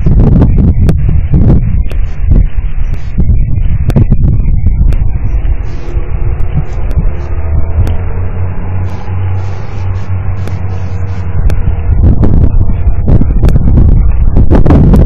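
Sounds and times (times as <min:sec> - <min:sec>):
rolling thunder: 0:03.8 - 0:10.4.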